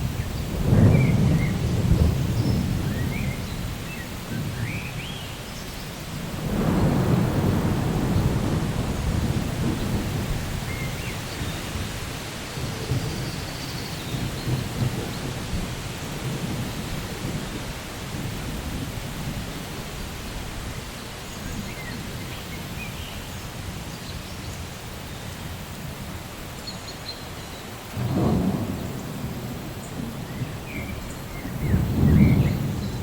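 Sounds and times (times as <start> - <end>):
rolling thunder: 0.0 - 5.1, 6.2 - 12.0, 12.6 - 19.5, 27.9 - 33.0
steady rain: 0.0 - 33.0.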